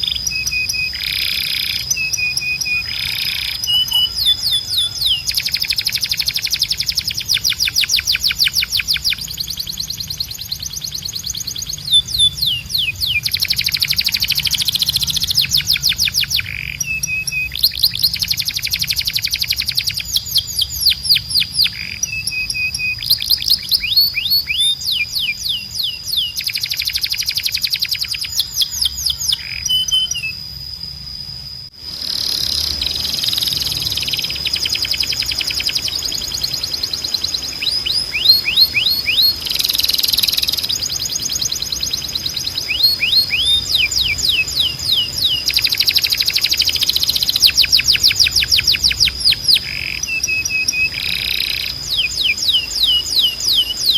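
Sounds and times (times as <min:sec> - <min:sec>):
steady high tone: 0:00.0 - 0:09.3
canary singing trills: 0:00.0 - 0:53.9.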